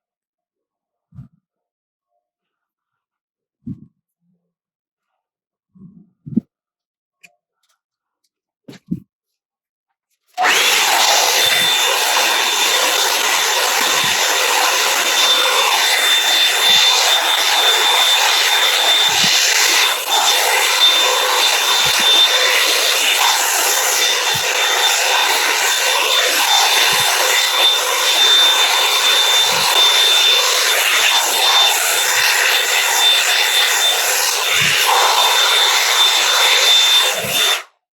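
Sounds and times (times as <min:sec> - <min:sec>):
hot-air brush blowing: 0:10.4 - 0:37.6.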